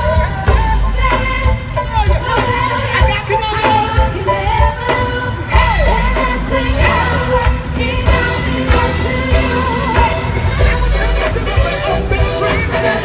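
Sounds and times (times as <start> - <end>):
drums: 0.0 - 13.0
gospel band playing: 0.0 - 13.0
voices singing: 0.0 - 13.0
heavy bass: 5.5 - 13.0.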